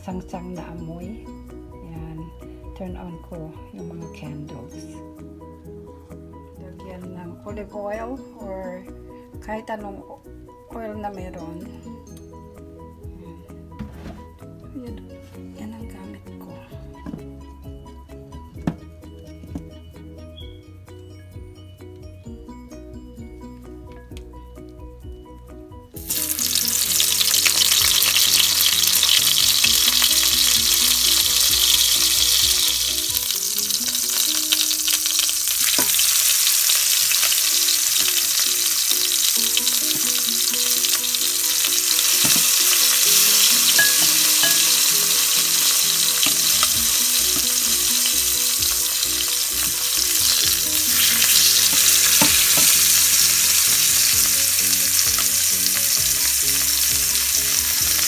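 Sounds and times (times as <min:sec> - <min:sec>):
fish sizzling in hot oil: 0:26.0 - 0:58.0.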